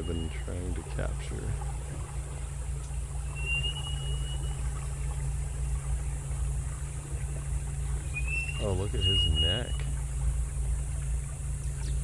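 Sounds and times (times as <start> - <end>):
boat motor idling: 0.0 - 12.0
thin rising whistle: 3.3 - 4.9, 8.1 - 9.9.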